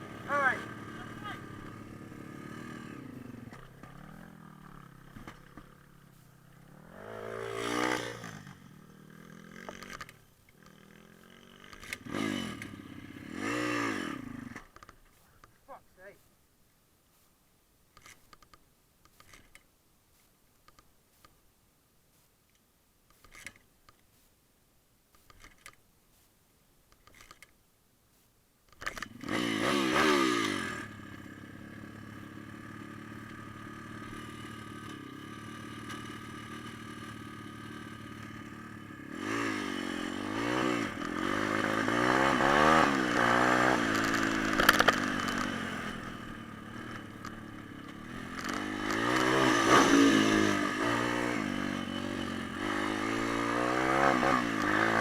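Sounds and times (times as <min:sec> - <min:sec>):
motorbike engine idling and revving: 0:00.0 - 0:14.9, 0:28.8 - 0:55.0.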